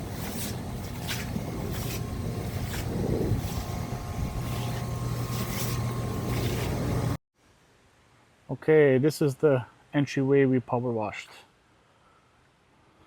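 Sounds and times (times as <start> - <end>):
pressure washer engine humming: 0.0 - 7.2
water spray hissing: 0.0 - 7.2.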